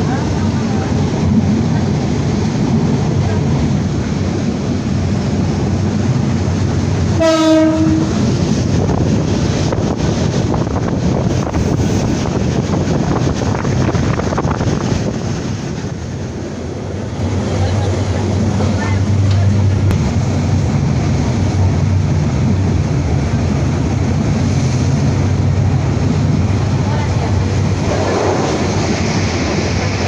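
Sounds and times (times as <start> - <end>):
train rumbling: 0.0 - 30.0
train horn: 7.1 - 8.2.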